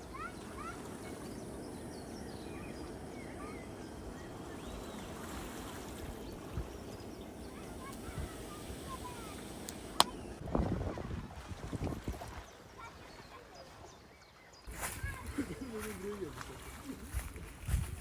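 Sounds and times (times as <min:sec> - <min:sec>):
small birds chirping: 0:00.0 - 0:10.4, 0:12.4 - 0:16.5
seaside rushing noise: 0:00.0 - 0:11.0.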